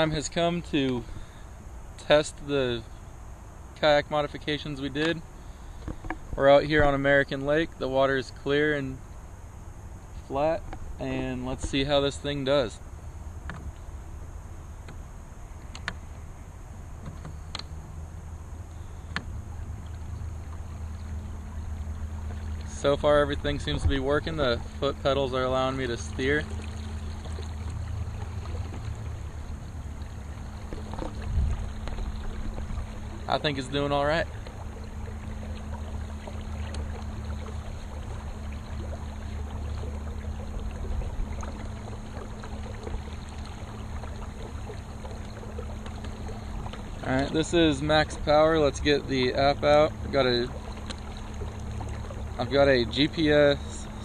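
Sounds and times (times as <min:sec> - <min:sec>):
faint motor hum: 0:00.0 - 0:54.0
low rumble of water and wind: 0:00.0 - 0:54.0.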